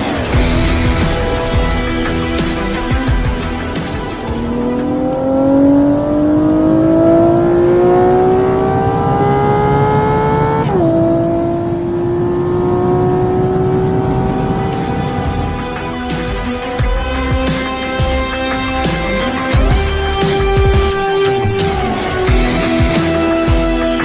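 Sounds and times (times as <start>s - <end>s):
car engine accelerating: 0.0s - 17.4s.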